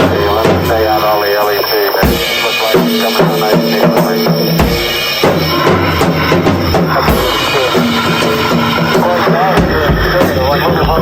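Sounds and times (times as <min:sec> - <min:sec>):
drum kit solo: 0:00.0 - 0:11.0
sustained pitched tones: 0:00.0 - 0:11.0.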